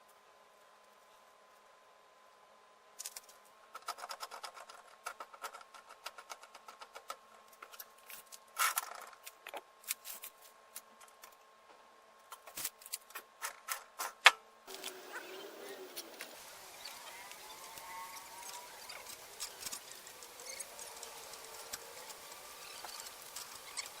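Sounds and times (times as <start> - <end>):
metal scrape: 14.7 - 24.0.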